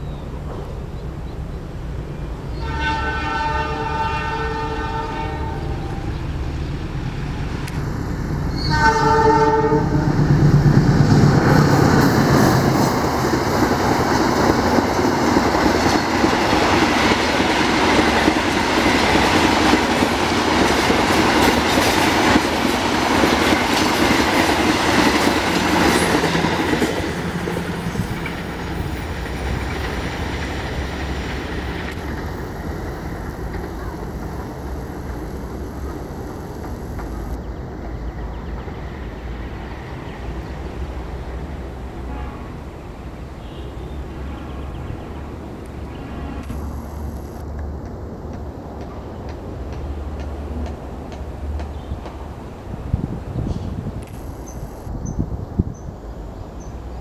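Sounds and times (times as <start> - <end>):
train horn blasts: 2.5 - 6.1, 8.6 - 10.2, 42.0 - 42.8
train wheels clattering on rails: 10.1 - 38.8, 46.5 - 54.6.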